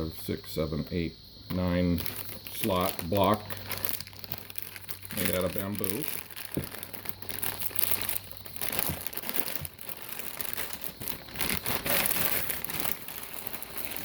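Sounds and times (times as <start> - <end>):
packaging crinkling and rustling: 1.9 - 14.0.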